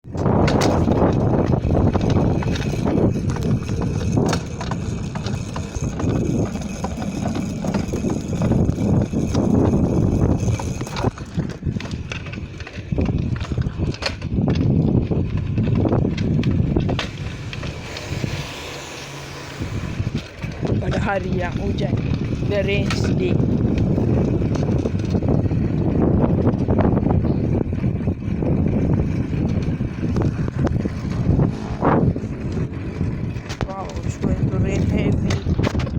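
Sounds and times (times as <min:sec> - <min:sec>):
bike clicks and rattles: 0:00.0 - 0:35.9
wind rumbling on microphone: 0:00.0 - 0:35.9.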